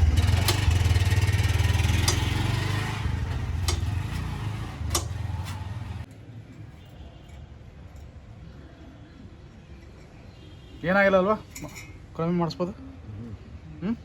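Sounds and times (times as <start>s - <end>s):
motorcycle engine idling: 0.0s - 6.1s.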